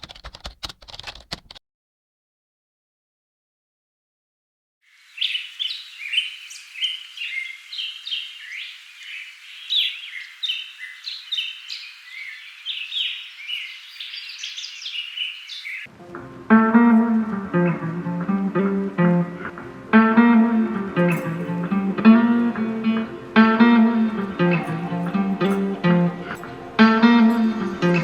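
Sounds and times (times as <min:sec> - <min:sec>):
birds chirping and singing: 0:05.2 - 0:15.9
guitar music: 0:15.9 - 0:28.0.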